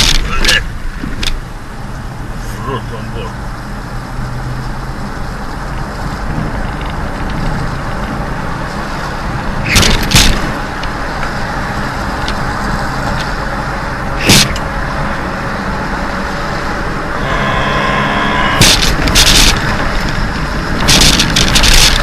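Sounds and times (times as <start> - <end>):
car running and road noise: 0.0 - 22.0
horn-like tone: 17.2 - 19.0.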